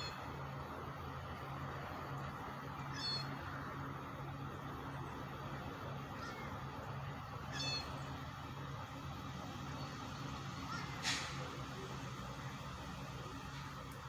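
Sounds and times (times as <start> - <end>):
engine humming: 0.0 - 14.0
high-pitched calls: 7.5 - 8.0.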